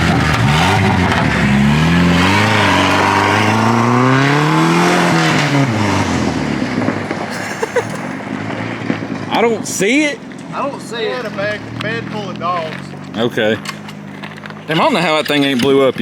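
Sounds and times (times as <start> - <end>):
engine accelerating hard: 0.0 - 15.1.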